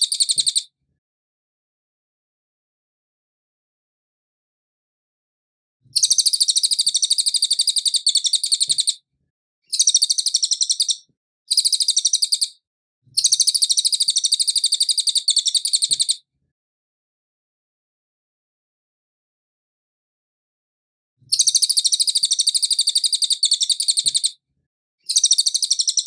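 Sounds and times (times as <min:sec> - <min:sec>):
songbird chattering trills: 0:09.7 - 0:12.5, 0:13.2 - 0:16.2.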